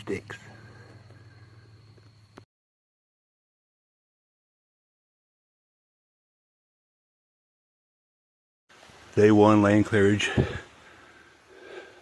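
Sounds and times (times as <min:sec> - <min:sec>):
background hiss: 0:00.0 - 0:02.4, 0:08.7 - 0:12.0
low hum: 0:00.0 - 0:02.4.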